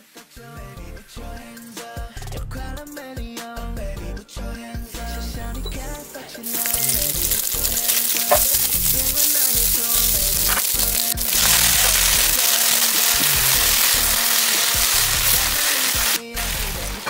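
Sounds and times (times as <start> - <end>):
hot oil sizzling in a wok: 6.0 - 17.0.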